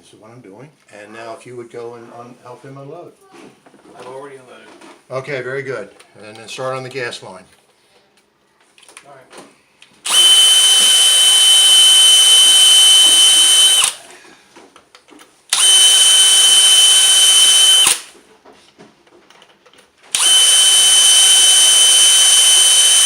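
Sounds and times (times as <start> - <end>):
power drill grinding: 10.0 - 14.1, 15.5 - 18.2, 20.1 - 23.0.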